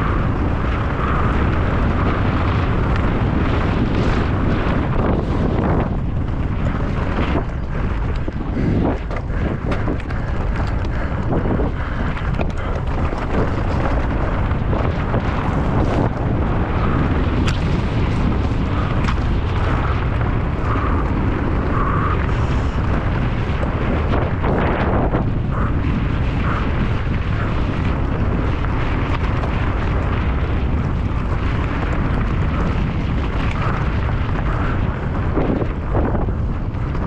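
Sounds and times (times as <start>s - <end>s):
wind rush on microphone: 0.0s - 37.0s
bike knocks and rattles: 2.0s - 21.2s.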